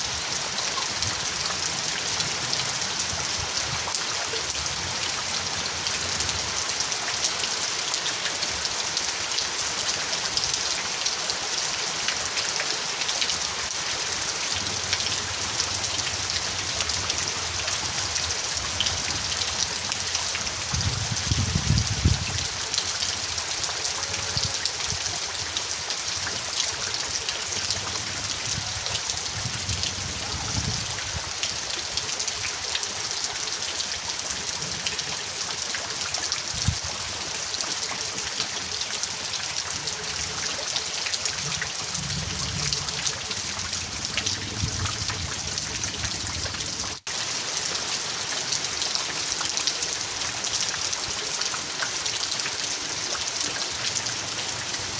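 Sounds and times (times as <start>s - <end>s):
steady rain with drops ticking: 0.0s - 54.9s.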